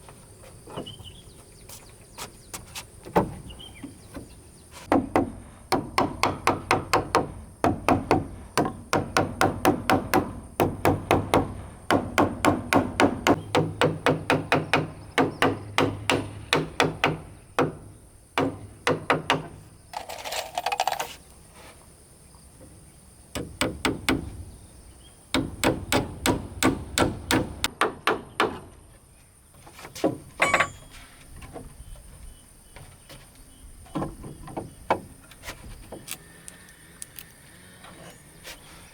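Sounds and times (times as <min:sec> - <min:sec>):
hammer striking wood: 0:04.9 - 0:17.8, 0:18.4 - 0:19.5, 0:25.3 - 0:28.7.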